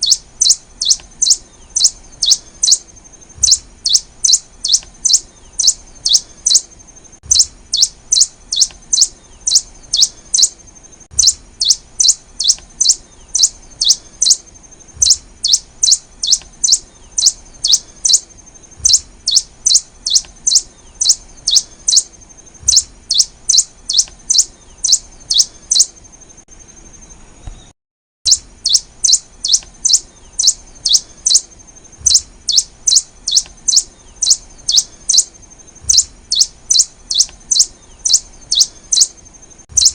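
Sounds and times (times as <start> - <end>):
bird singing high chirps: 0.0 - 27.7, 28.3 - 39.9
faint steady high tone: 0.0 - 27.7, 28.3 - 39.9.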